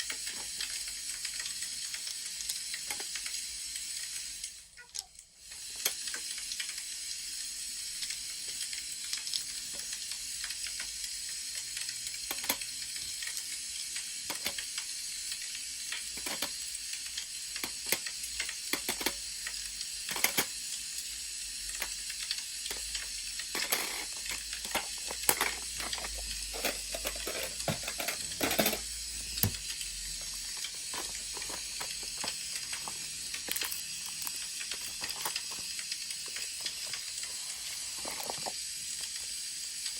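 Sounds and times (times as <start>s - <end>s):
wood fire crackling: 28.8s - 39.9s.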